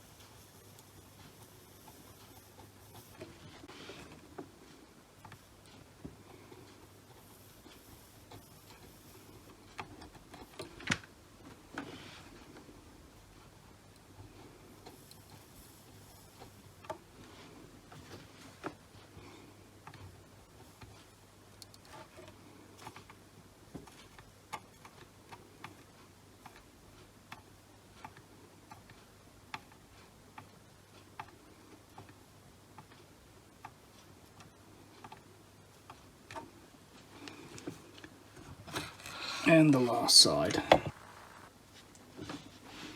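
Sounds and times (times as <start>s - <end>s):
faint low hum: 36.6s - 42.6s.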